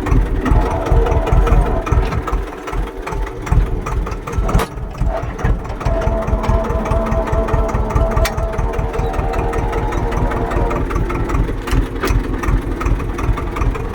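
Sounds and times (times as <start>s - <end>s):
tractor engine chugging: 0.0s - 13.9s
high whine: 4.8s - 12.4s.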